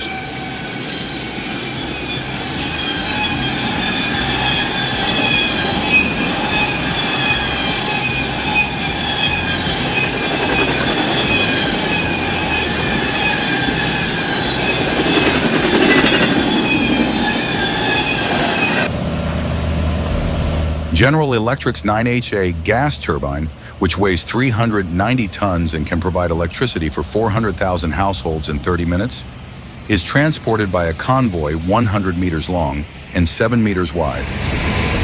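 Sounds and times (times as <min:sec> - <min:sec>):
train wheels squealing on rails: 0:00.0 - 0:18.9
train rumble: 0:00.0 - 0:35.0.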